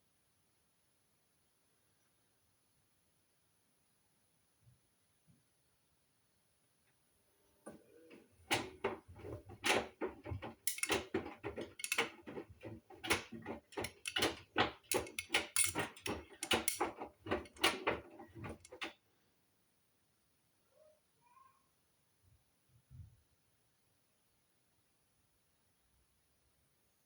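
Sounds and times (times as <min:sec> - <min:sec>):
washing machine drum knocking: 0:08.4 - 0:18.9.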